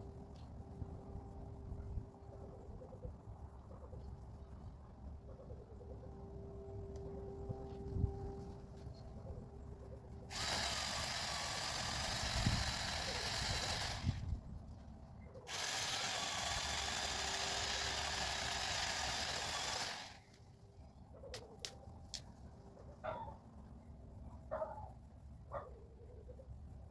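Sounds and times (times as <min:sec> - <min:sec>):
electric chain saw running: 0:10.3 - 0:14.3, 0:15.5 - 0:20.2.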